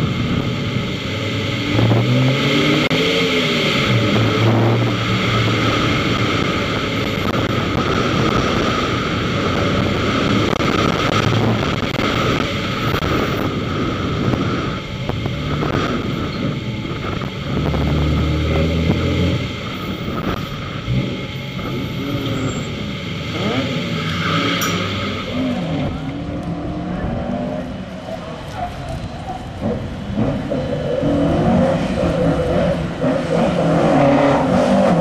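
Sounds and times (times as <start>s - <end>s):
car engine revving: 0.0s - 35.0s
road and wind noise: 0.0s - 35.0s.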